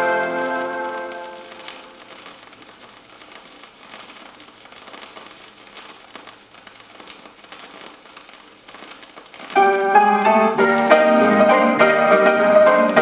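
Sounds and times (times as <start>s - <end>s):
vinyl crackles and clicks: 0.0s - 13.0s
vinyl surface hiss: 0.0s - 13.0s
song ending notes: 9.6s - 13.0s.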